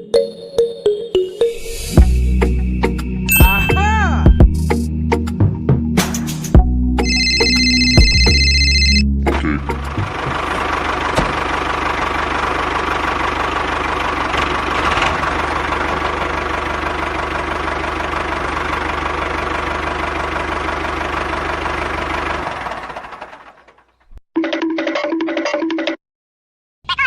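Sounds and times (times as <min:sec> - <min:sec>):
small engine running: 0:09.9 - 0:23.9.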